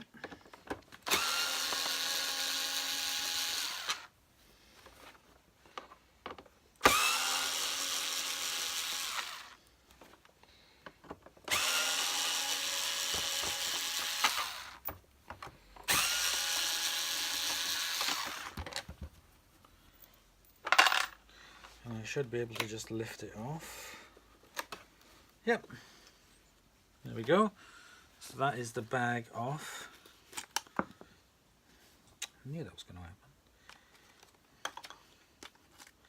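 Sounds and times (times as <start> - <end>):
power drill whining: 1.0 - 4.1, 6.8 - 9.8, 11.4 - 15.0, 15.8 - 18.8.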